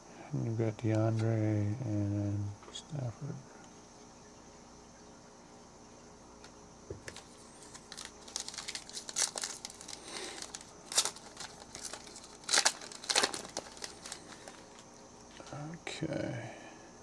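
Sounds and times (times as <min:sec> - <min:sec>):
foil wrapper crinkling and tearing: 0:07.0 - 0:15.5.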